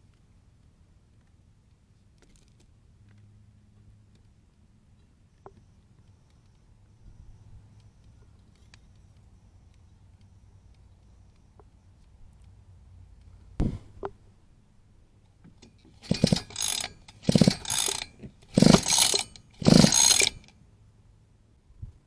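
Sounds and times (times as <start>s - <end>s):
rapid ratcheting clicks: 16.0s - 20.5s.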